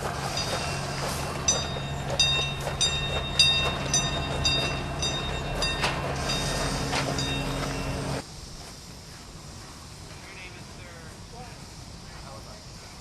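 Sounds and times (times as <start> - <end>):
steady low hum: 0.0 - 12.9
miniature steam train running: 0.0 - 13.0
metallic ringing strikes: 0.3 - 8.2.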